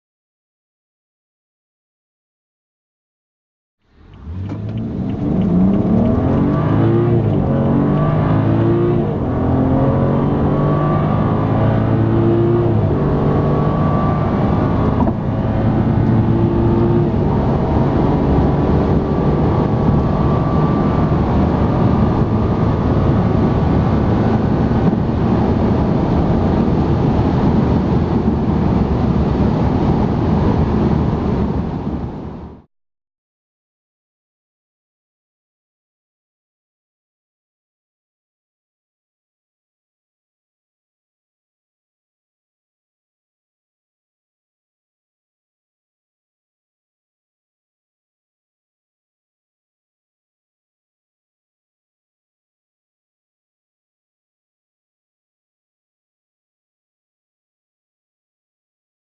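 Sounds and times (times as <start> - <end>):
wind and road noise: 3.8 - 32.7
car engine accelerating with gear shifts: 3.9 - 32.7.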